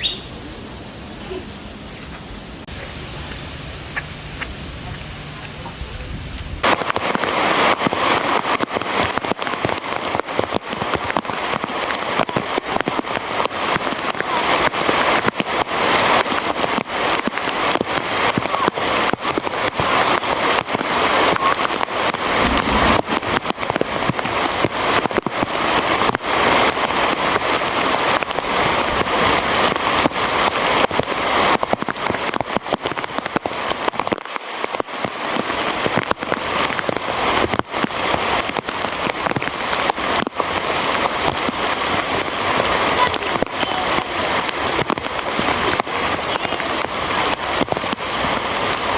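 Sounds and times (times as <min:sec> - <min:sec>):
heavy rain falling: 0:00.0 - 0:48.9.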